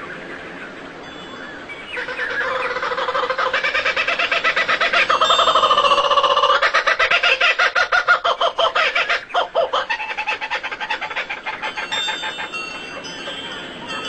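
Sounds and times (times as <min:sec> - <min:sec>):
loon tremolo call: 0:02.0 - 0:14.0.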